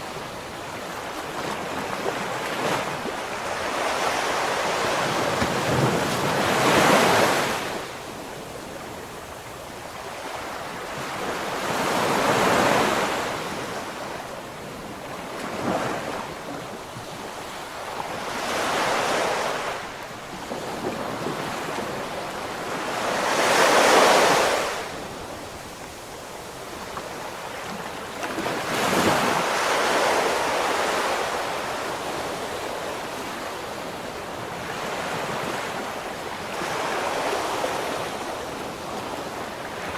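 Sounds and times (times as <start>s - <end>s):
ocean waves breaking on shore: 0.0s - 39.9s
wind on microphone: 0.0s - 39.9s.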